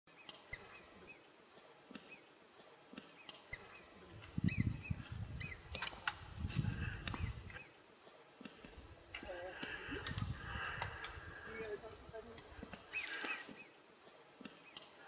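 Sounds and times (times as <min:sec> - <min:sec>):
high chirping bird calls: 0:03.1 - 0:05.9, 0:12.8 - 0:13.8
low rumble on microphone: 0:04.2 - 0:07.6.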